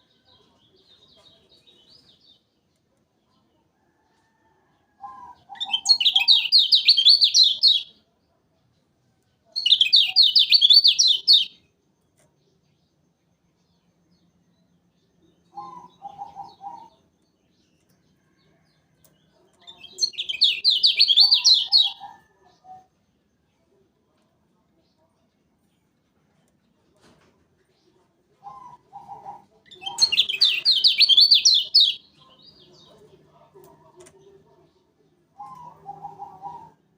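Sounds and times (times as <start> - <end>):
bird singing high chirps: 5.5 - 7.9, 9.6 - 11.6, 19.7 - 22.9, 29.7 - 32.9
bird singing sweeping chirps: 9.6 - 11.5, 29.8 - 32.1.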